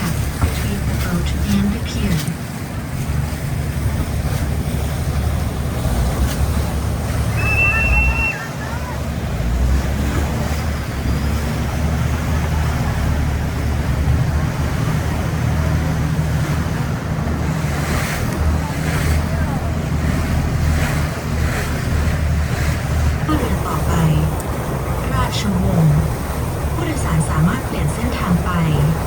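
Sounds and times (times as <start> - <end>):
boat engine humming: 0.0 - 29.0
water rushing along hull: 0.0 - 29.0.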